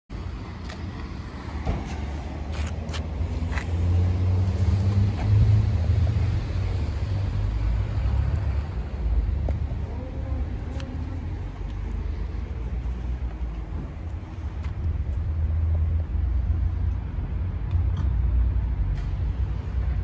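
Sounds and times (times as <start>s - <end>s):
vehicle engine rumble: 0.1s - 20.0s.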